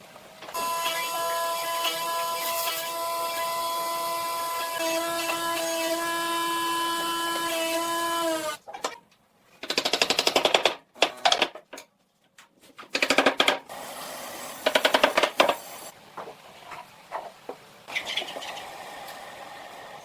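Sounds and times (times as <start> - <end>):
power tool hammering: 13.3 - 15.9.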